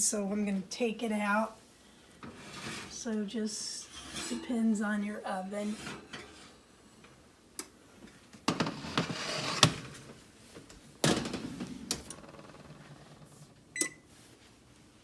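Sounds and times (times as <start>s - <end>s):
rustling and scraping: 2.2s - 3.0s, 3.8s - 4.7s, 8.0s - 14.6s.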